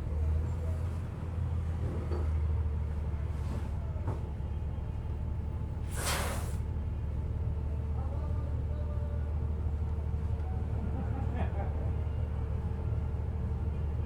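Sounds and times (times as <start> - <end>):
bus engine rumble: 0.0 - 14.0
short loud hiss: 5.9 - 6.6.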